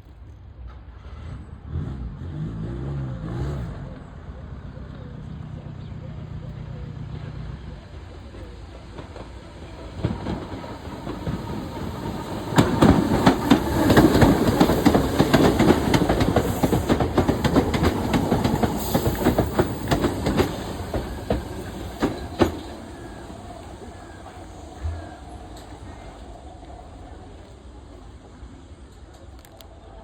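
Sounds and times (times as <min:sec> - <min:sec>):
train wheels clattering over rails: 0:08.0 - 0:27.4.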